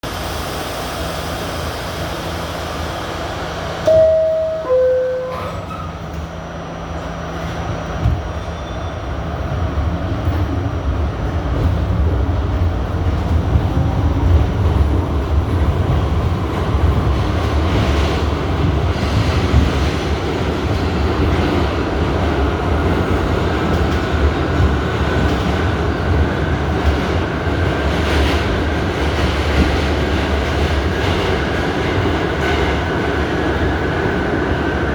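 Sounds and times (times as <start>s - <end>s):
train wheels rumbling on rails: 0.0s - 34.9s
two-note falling door chime: 3.9s - 6.0s.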